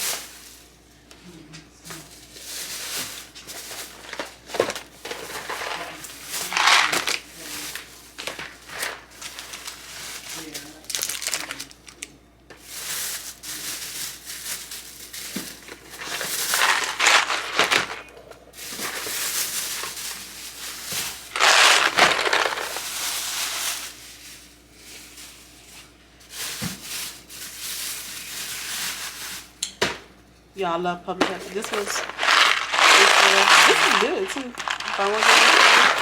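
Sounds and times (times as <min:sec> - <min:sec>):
plastic bags rustling and crinkling: 0:00.0 - 0:00.9, 0:01.8 - 0:29.6, 0:30.6 - 0:36.0.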